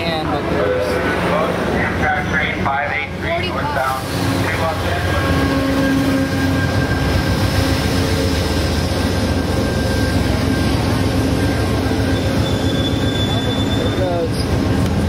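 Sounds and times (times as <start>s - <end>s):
diesel locomotive engine droning: 0.0s - 15.0s
wheels rumbling on rails: 0.0s - 15.0s
faint high wheel squeal: 4.5s - 8.4s, 9.4s - 14.5s.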